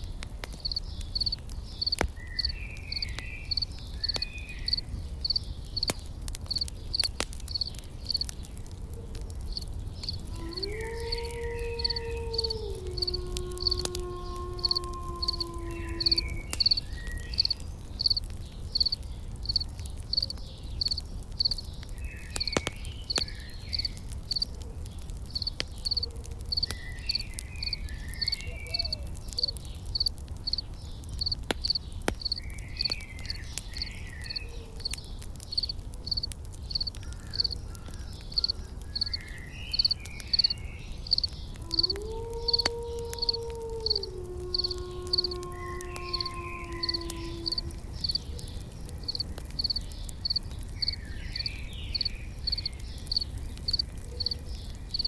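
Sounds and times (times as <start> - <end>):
campfire rumble and crackles: 0.0 - 55.0
cricket chirping: 0.6 - 5.9, 6.5 - 8.3, 14.6 - 18.2, 18.8 - 21.6, 25.4 - 29.0, 29.9 - 30.6, 31.2 - 34.4, 35.5 - 37.6, 38.4 - 48.2, 48.9 - 55.0.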